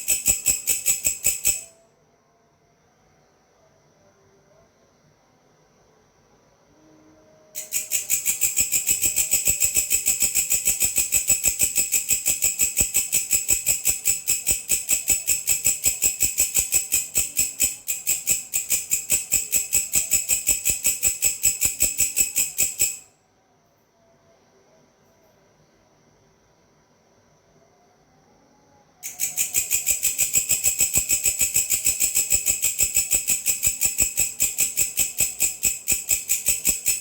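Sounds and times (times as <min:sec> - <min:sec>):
grasshopper stridulating: 0:00.0 - 0:01.7, 0:07.6 - 0:23.0, 0:29.0 - 0:37.0.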